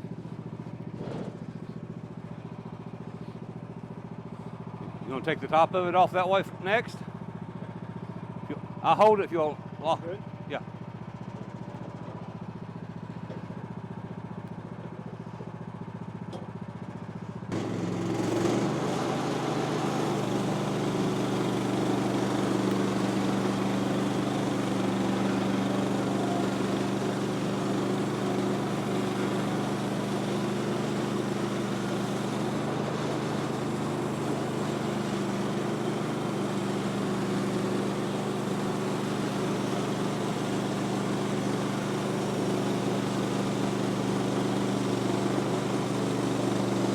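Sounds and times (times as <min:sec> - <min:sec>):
gas engine running: 0:00.0 - 0:46.9
band blade sawing log: 0:17.5 - 0:46.9.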